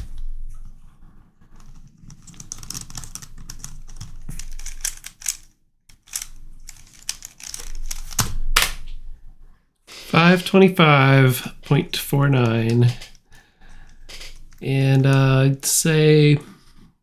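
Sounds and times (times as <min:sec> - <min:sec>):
plastic puzzle clicking and rattling: 0:01.5 - 0:08.4, 0:12.4 - 0:15.4
puzzle pieces clacking: 0:02.1 - 0:08.2, 0:11.4 - 0:13.2, 0:13.8 - 0:15.4.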